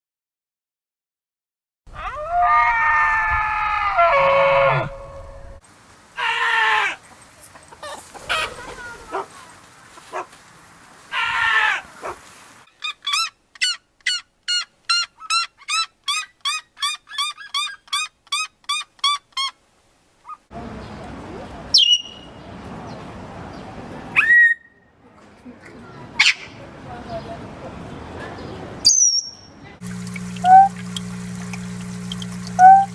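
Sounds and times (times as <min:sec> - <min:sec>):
chicken calls: 0:06.2 - 0:10.3, 0:11.1 - 0:18.5.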